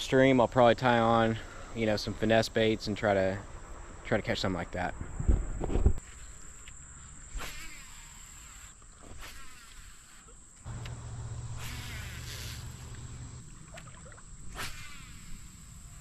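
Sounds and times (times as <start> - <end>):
insects droning: 0.0 - 16.0
low steady hum: 10.7 - 14.6
short rushing noises: 11.3 - 13.4.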